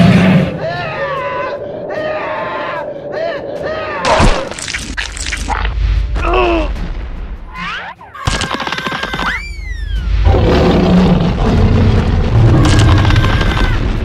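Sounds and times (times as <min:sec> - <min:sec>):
loud rumbling din: 0:10.0 - 0:14.0.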